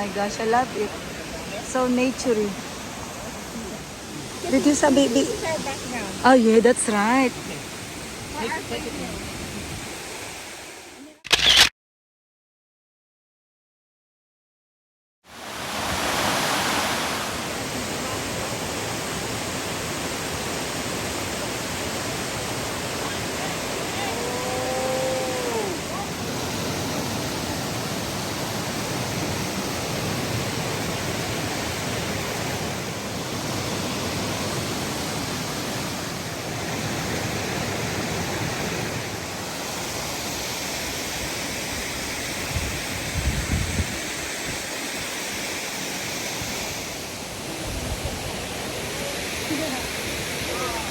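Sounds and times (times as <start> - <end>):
waterfall rushing: 0.0 - 11.1, 15.3 - 50.9.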